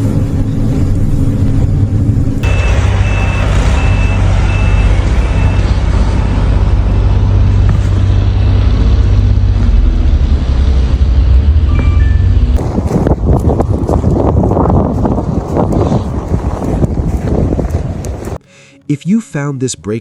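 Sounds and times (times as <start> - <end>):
large vehicle engine humming: 0.0 - 19.0
reversing alarm beeping: 2.4 - 6.5, 11.7 - 12.6.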